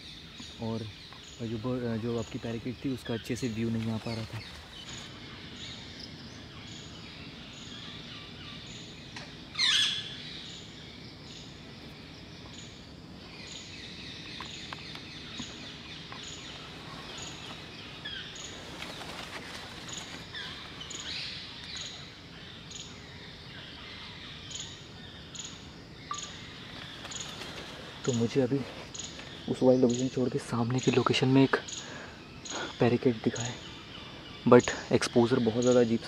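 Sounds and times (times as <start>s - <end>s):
wild birds chirping: 0.0s - 36.0s.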